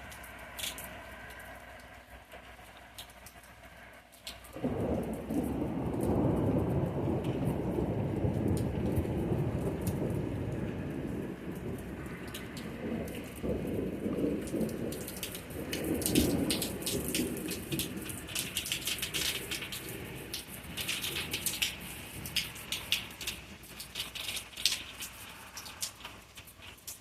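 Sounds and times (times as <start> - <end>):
rain pattering in drips: 0.0 - 27.0
thunder rumbling low: 4.3 - 23.8.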